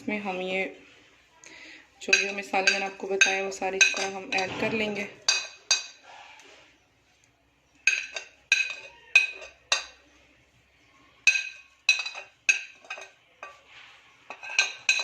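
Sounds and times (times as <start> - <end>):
spoon clinking against bowl: 2.1 - 4.5, 5.2 - 6.0, 7.8 - 10.0, 11.2 - 13.6, 14.3 - 15.0.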